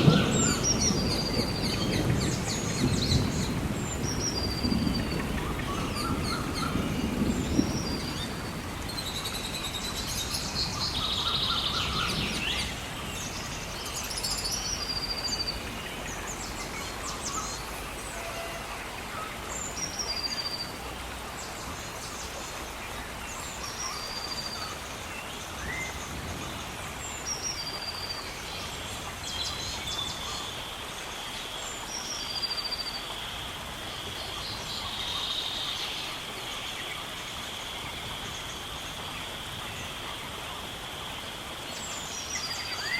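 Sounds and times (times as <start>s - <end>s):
songbirds chirping and singing: 0.0s - 20.8s
gentle rain hiss: 0.0s - 42.9s.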